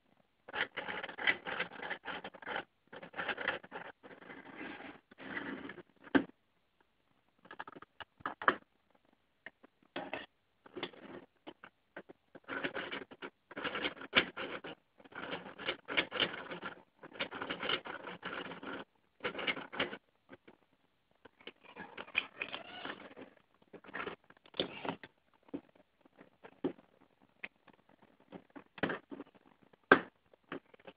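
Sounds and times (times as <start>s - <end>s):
plastic parts clicking and rattling: 7.4s - 30.9s.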